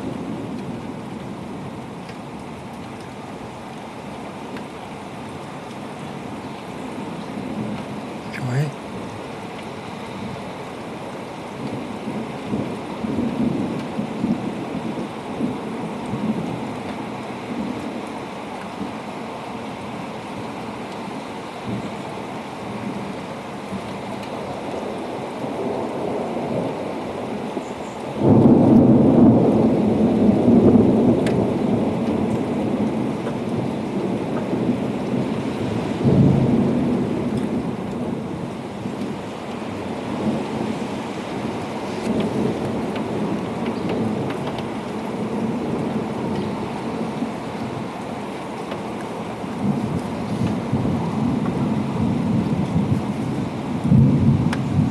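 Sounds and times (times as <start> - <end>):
steady rain: 0.0 - 54.9
thunder rumbling: 11.6 - 18.0, 22.7 - 54.9.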